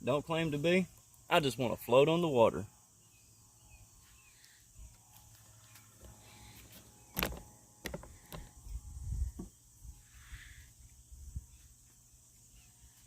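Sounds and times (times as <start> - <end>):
sharp knocks and clicks: 7.2 - 8.5.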